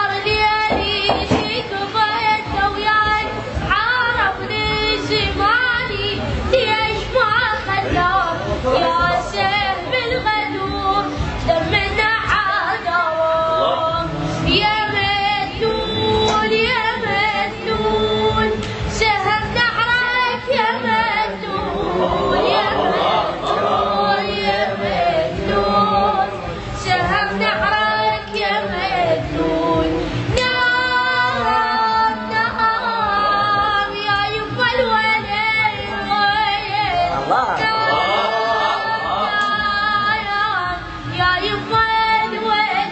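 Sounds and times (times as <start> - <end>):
musical backing: 0.0 - 42.9.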